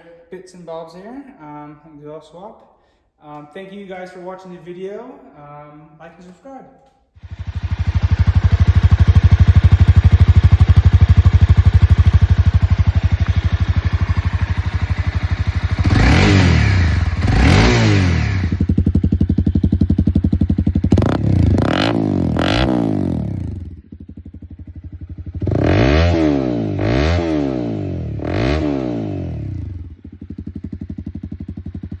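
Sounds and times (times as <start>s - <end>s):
motorcycle engine idling and revving: 7.2s - 32.0s.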